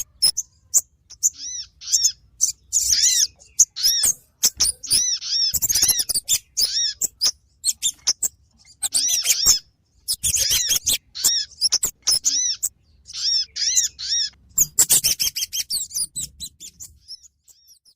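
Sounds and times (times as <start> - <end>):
arched whistled bird notes: 0.0 - 17.9
sharp high bird chips: 0.0 - 17.9.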